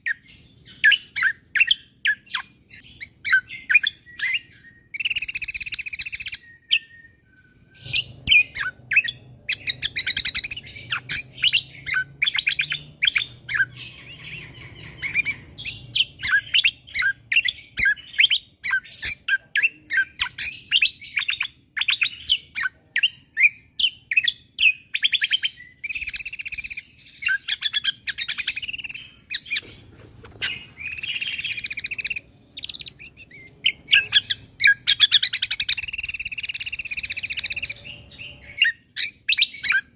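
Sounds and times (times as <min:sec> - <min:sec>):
songbird chirping rapidly: 0:00.0 - 0:39.9.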